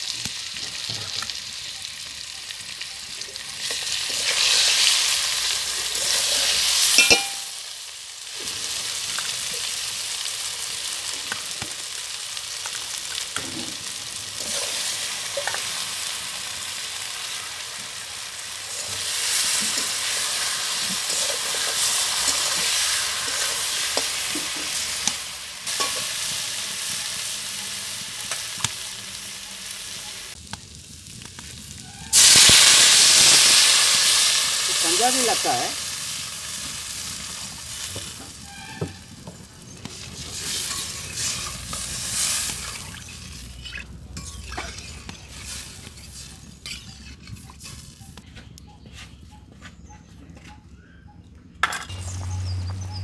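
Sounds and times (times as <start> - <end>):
potatoes sizzling in oil: 0.0 - 48.2
metal spatula scraping pan: 39.9 - 48.2.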